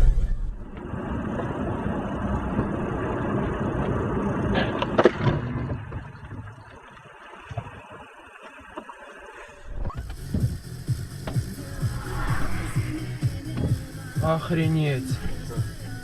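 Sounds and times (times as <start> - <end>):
road and engine rumble: 9.9 - 16.0.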